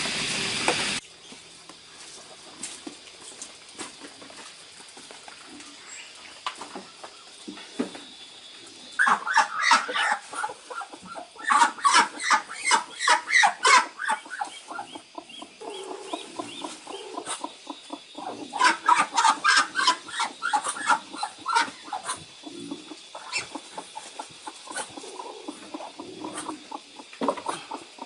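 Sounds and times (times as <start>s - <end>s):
chickens clucking: 9.0s - 28.0s.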